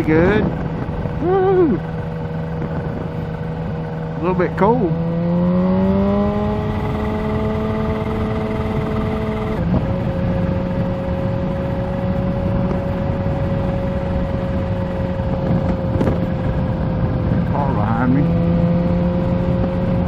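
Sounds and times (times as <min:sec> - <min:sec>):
wind rush on microphone: 0:00.0 - 0:20.0.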